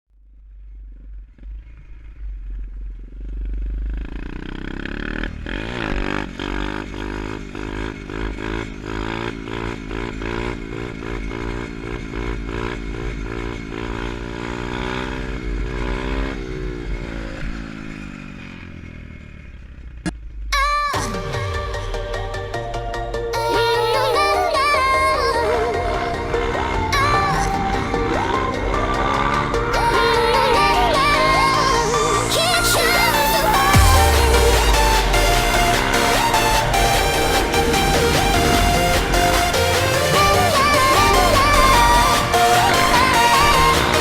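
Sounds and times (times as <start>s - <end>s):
motorbike engine revving: 0.2s - 44.0s.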